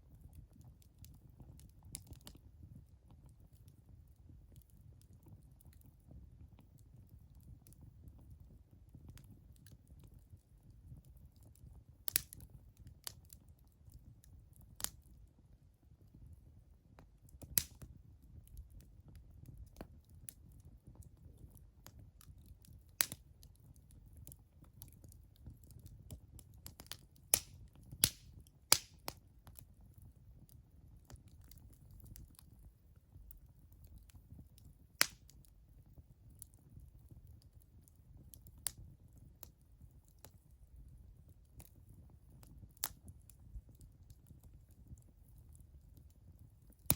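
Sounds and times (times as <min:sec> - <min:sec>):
campfire crackling and popping: 0:00.0 - 0:15.2, 0:17.0 - 0:46.9.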